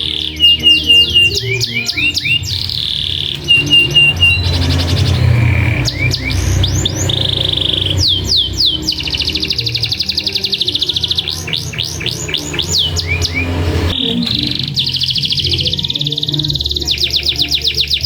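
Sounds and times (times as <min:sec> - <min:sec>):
canary singing: 0:00.0 - 0:18.0
low steady hum: 0:00.0 - 0:18.0.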